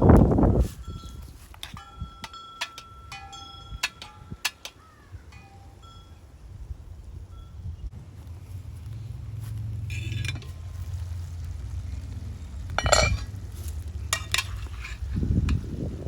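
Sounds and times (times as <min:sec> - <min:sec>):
metal utensil scraping cookware: 0:01.6 - 0:05.6, 0:09.9 - 0:10.6, 0:12.8 - 0:13.3, 0:14.1 - 0:15.6
low steady rumble: 0:06.2 - 0:16.0.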